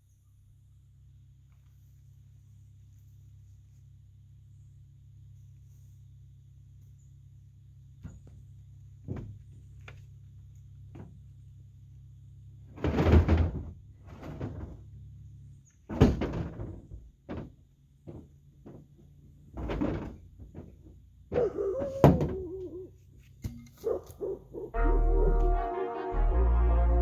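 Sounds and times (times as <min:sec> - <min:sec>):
irregular thuds and knocks: 0:08.0 - 0:10.1, 0:10.8 - 0:11.4, 0:12.6 - 0:22.8.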